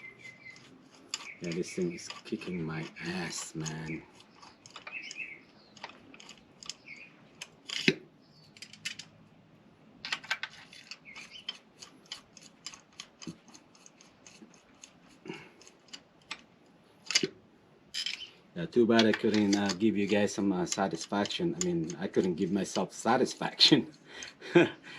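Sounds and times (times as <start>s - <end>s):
small hard objects clicking: 0.1s - 9.1s, 10.0s - 17.3s, 19.0s - 22.4s.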